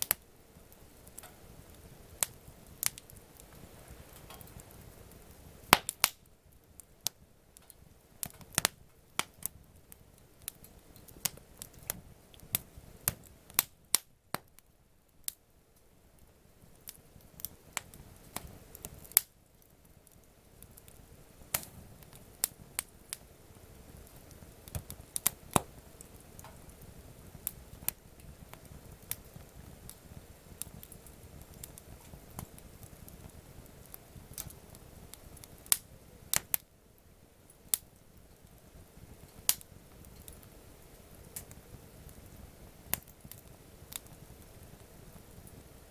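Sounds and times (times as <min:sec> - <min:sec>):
campfire crackling: 0:00.0 - 0:45.9
faint low hiss: 0:00.0 - 0:45.9.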